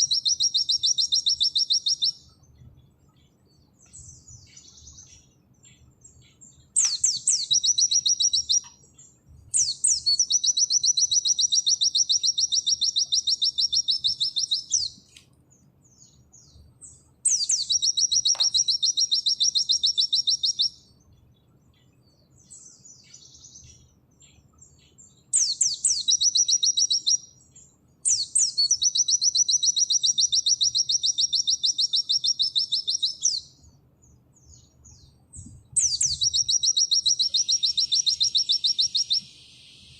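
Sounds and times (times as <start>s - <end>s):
bird singing rapid trills: 0.0s - 39.9s.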